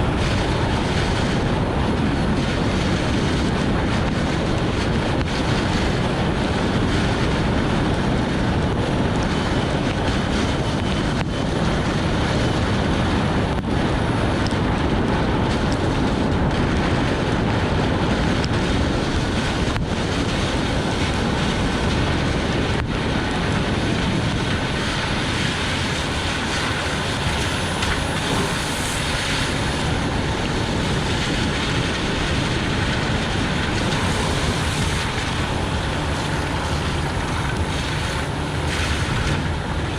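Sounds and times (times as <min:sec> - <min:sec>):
rain: 0:00.0 - 0:39.9
wind noise: 0:00.0 - 0:39.9
tyres hissing on wet road: 0:16.8 - 0:39.9.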